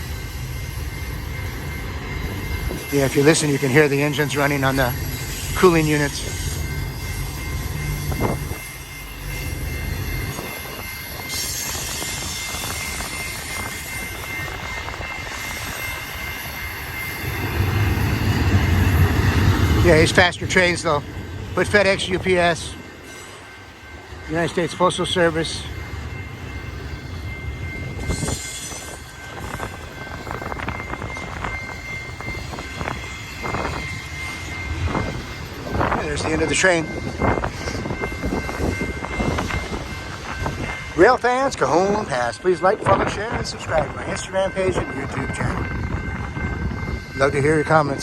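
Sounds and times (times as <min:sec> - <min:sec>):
train rolling noise: 0:00.0 - 0:48.0
wind buffeting microphone: 0:06.3 - 0:08.7, 0:27.4 - 0:41.0, 0:42.8 - 0:47.2.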